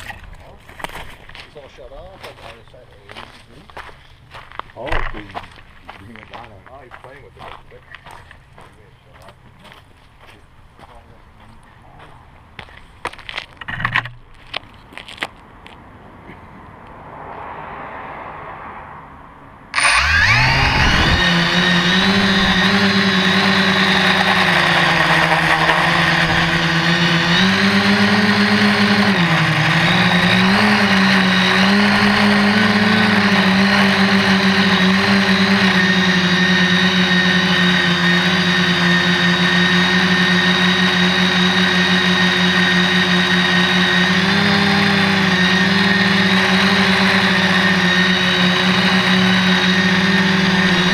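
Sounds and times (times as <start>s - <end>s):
quadcopter motors buzzing: 19.7s - 50.9s.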